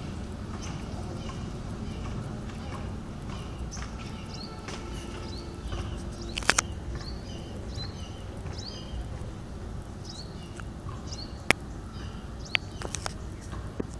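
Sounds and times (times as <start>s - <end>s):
low background rumble: 0.0s - 13.9s
small birds chirping: 0.0s - 13.9s
sharp clicks: 0.6s - 9.3s, 12.5s - 13.9s.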